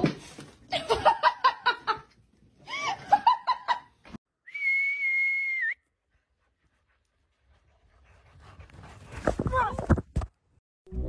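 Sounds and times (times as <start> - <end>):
high whistle: 4.4 - 5.8.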